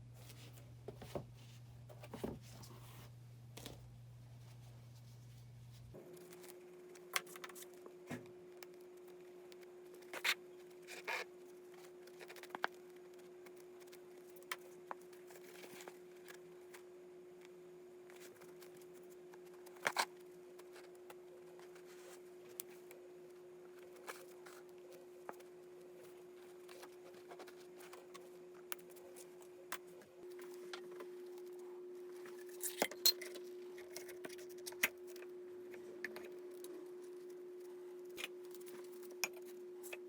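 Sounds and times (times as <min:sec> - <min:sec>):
steady hum: 0:12.8 - 0:40.0.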